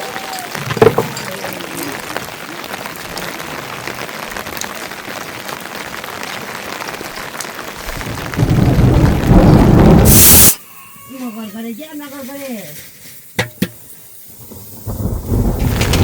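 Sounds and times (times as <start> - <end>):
rain pattering: 0.0 - 10.6, 13.8 - 16.0
loud deep noise: 7.9 - 10.5.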